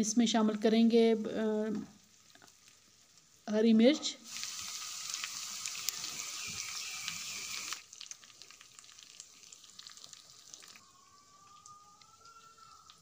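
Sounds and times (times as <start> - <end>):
chicken frying in oil: 2.0 - 3.6, 4.2 - 13.0.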